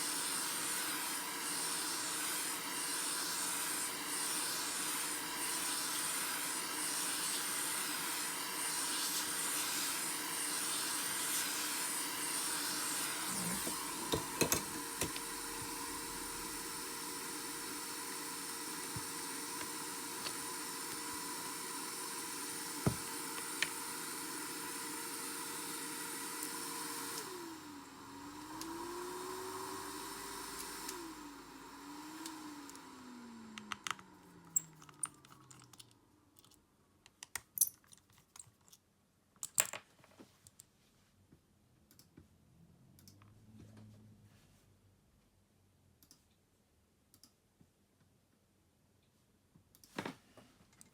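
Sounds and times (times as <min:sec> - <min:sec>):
hot-air gun blowing: 0:00.0 - 0:27.4.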